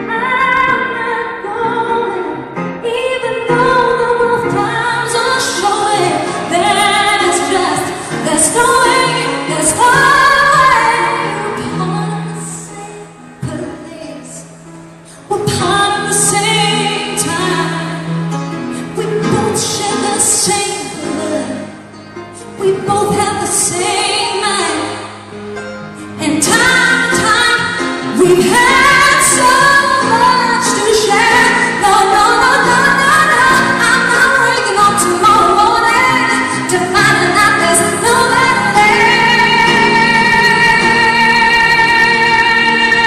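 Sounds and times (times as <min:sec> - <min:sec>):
woman singing a ballad: 0:00.0 - 0:25.4, 0:26.0 - 0:43.0.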